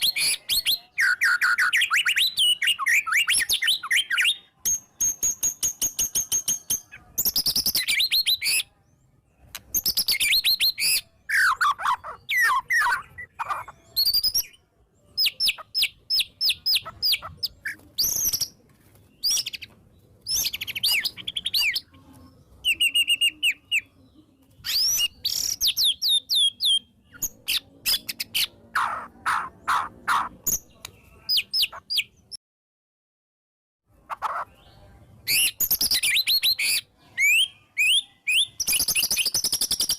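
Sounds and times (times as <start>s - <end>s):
songbird singing: 0.0s - 32.4s, 33.9s - 39.9s.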